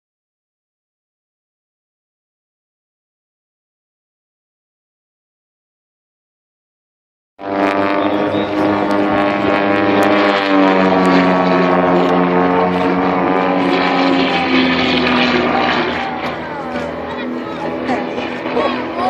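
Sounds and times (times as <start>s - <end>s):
propeller aircraft engine: 7.4s - 19.0s.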